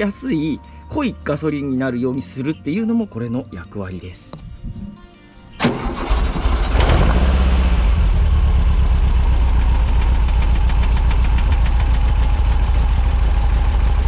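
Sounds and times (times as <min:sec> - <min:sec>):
engine starting and idling: 0:05.5 - 0:14.0.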